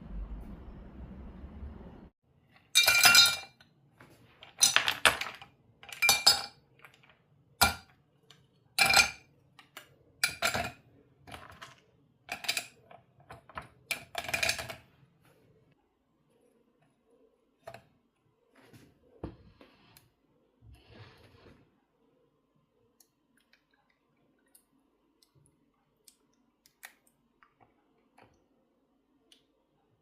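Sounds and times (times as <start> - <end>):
low rumble: 0.0 - 2.1.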